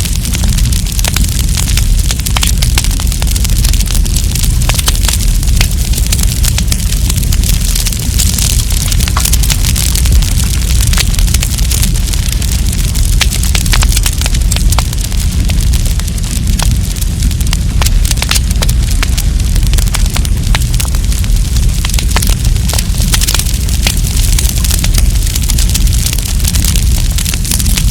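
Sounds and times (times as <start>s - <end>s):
campfire crackling: 0.0s - 27.9s.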